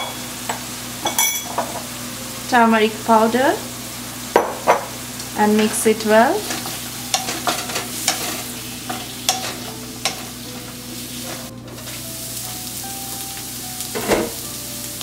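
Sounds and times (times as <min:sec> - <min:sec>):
oil sizzling: 0:00.0 - 0:15.0
spoon scraping pan: 0:05.6 - 0:10.4.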